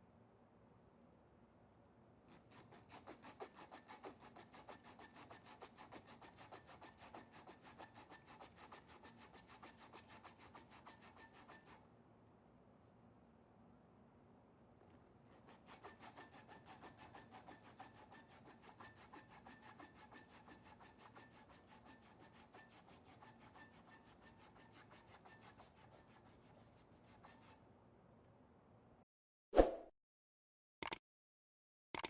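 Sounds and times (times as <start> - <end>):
abrasive rubbing on knife steel: 6.5 - 11.8.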